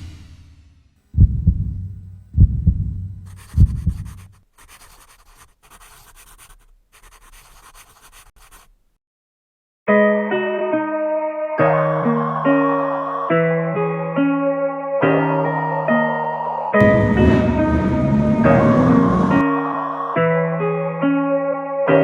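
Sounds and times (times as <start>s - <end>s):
deep booming hits: 0.0s - 4.2s, 16.8s - 19.4s.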